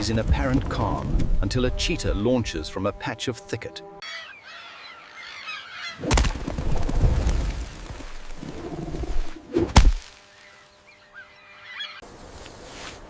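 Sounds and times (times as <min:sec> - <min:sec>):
low rumbling with crackle: 0:06.1 - 0:09.4.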